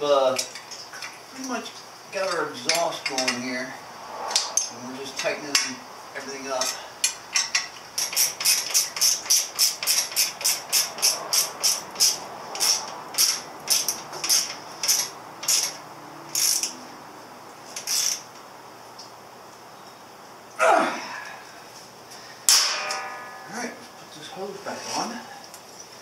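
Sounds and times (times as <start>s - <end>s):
ratchet wrench clicking: 7.0s - 15.8s, 16.4s - 16.8s.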